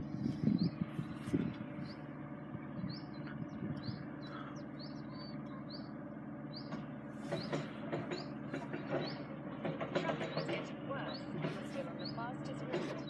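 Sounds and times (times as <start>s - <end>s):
steady low hum: 0.0s - 13.0s
small bird chirping: 2.8s - 9.3s.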